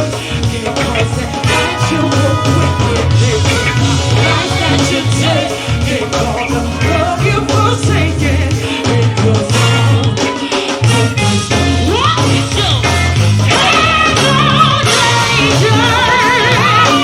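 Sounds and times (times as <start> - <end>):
live band playing: 0.0 - 17.0
person singing: 0.0 - 17.0
pounding bass and drums: 0.0 - 17.0.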